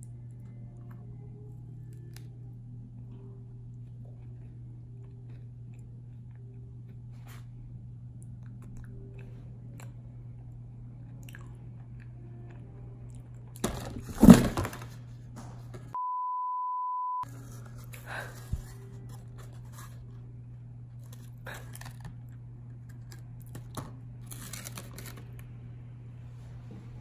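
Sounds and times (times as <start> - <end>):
chewing macaron: 0.0 - 13.6
electronic beep: 16.0 - 17.2.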